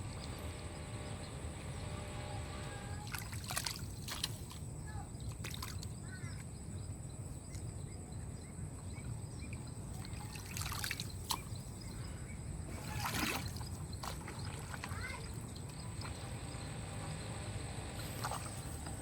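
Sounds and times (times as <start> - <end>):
water trickling and splashing: 3.0 - 6.5, 8.8 - 12.0, 12.7 - 16.7.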